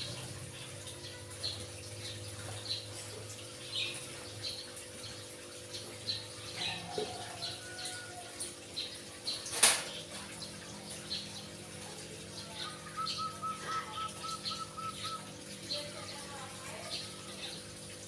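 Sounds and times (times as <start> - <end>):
caged birds chirping: 0.0 - 18.0
run of lower-pitched bird notes: 12.6 - 15.4.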